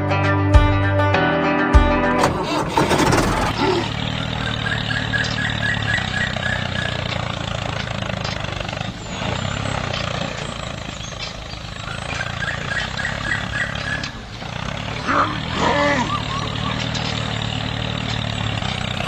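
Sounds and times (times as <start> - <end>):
high chirps: 3.7 - 15.0, 15.7 - 19.0.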